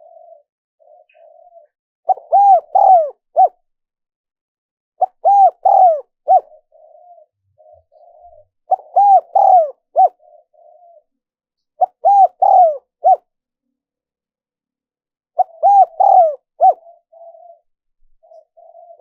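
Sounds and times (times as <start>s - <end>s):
dove cooing: 0.0s - 3.6s, 5.0s - 11.2s, 11.8s - 13.3s, 15.4s - 19.0s.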